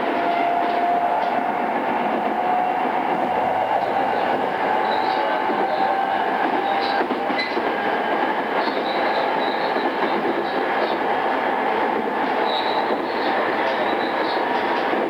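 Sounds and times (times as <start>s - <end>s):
train motor whine: 0.0s - 7.9s
train wheels rumbling on rail: 0.0s - 15.0s.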